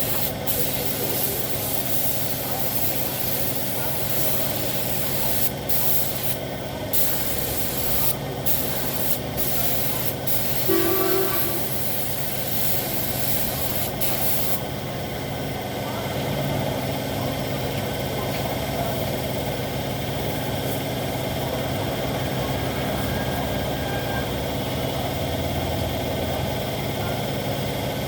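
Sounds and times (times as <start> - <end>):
spray gun hissing: 0.0 - 14.6
steady low hum: 0.0 - 23.4
brief pitched tone: 10.7 - 11.8.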